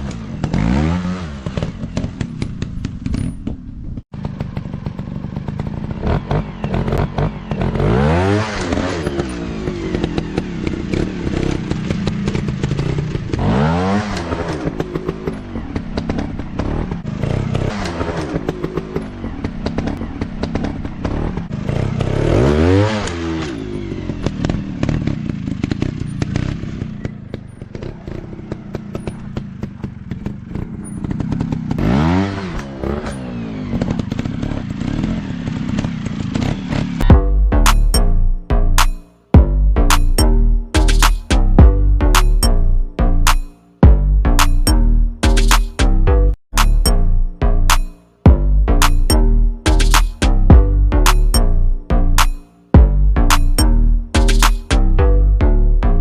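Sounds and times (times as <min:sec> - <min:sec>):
dirt bike engines revving: 0:04.2 - 0:37.1.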